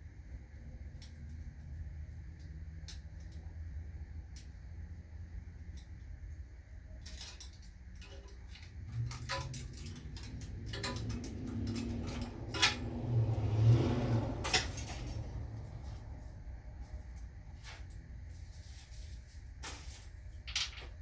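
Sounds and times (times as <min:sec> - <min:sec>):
metallic clanks and knocks: 0:07.1 - 0:15.5, 0:19.7 - 0:21.0.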